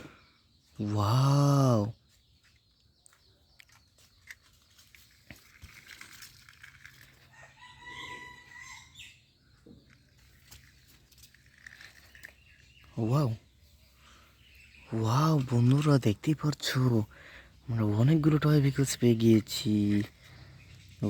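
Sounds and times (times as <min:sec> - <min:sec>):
faint rooster crowing: 0:07.2 - 0:09.2.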